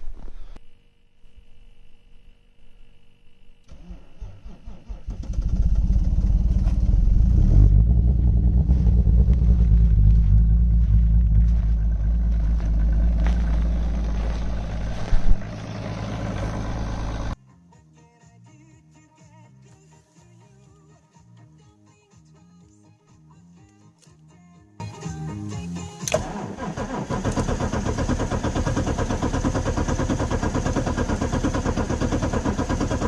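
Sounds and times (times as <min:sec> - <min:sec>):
diesel engine running: 0:03.7 - 0:17.4, 0:26.1 - 0:33.0
engine revving: 0:03.7 - 0:17.4, 0:26.0 - 0:33.0
starter motor cranking: 0:26.1 - 0:33.0.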